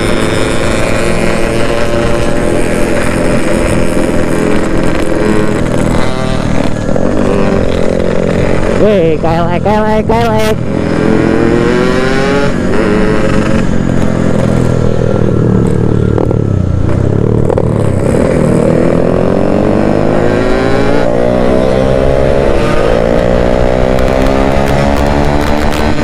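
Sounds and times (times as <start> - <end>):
two-stroke motorcycle engine revving: 0.0 - 26.0.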